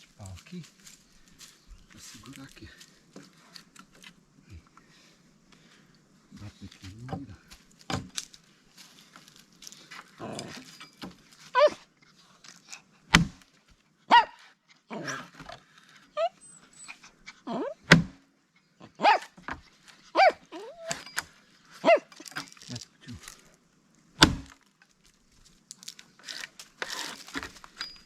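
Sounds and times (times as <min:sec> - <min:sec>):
dog yelping barks: 0:11.6 - 0:11.8, 0:14.1 - 0:15.2, 0:16.2 - 0:17.9, 0:18.8 - 0:19.4, 0:20.1 - 0:21.0, 0:21.8 - 0:22.2
axe hammering wooden wedge: 0:13.1 - 0:13.4, 0:17.9 - 0:18.2, 0:24.2 - 0:24.6.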